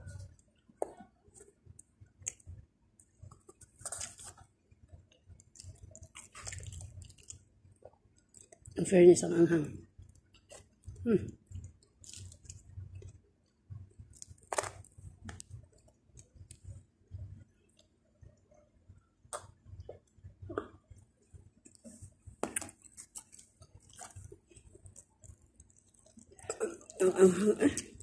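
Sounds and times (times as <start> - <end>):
close chewing: 0.1 - 8.8, 10.0 - 13.2, 21.6 - 27.2.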